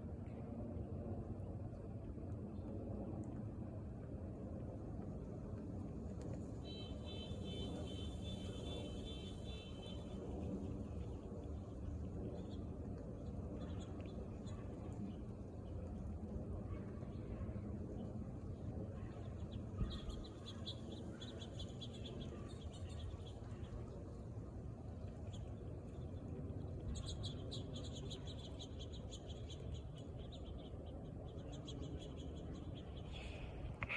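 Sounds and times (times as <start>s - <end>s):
low background noise: 0.0s - 33.9s.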